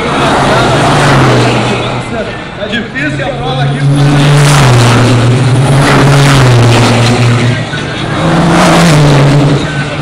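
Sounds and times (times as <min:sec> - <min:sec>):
race truck engines droning: 0:00.0 - 0:10.0
trucks rushing past: 0:00.0 - 0:10.0.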